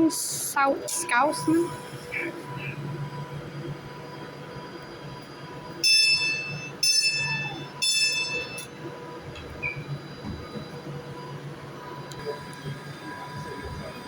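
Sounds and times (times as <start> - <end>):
sharp ringing metallic tones: 5.8 - 8.8.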